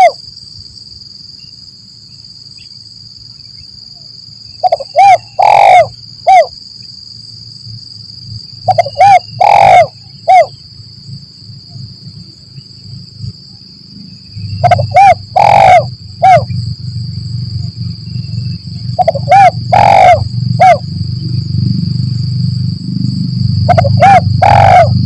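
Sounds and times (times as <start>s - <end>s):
high-pitched insect drone: 0.0s - 25.0s
dove cooing: 4.6s - 6.5s, 8.6s - 10.6s, 14.6s - 16.6s, 18.9s - 20.8s, 23.6s - 25.0s.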